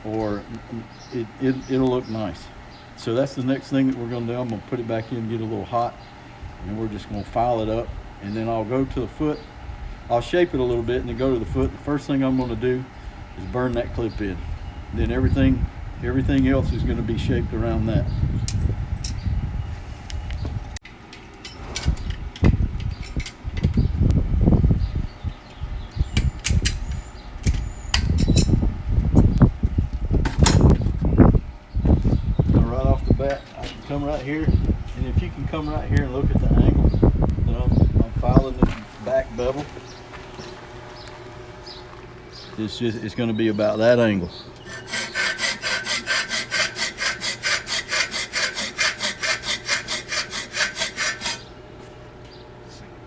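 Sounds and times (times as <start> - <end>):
forge blower rumbling: 0.0 - 53.0
hand file on steel: 44.6 - 51.5.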